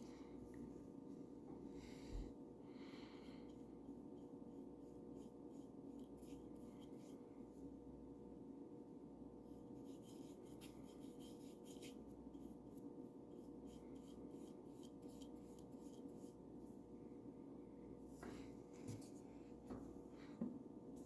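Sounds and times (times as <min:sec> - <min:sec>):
paint brush strokes: 0:03.3 - 0:07.8, 0:09.5 - 0:16.9.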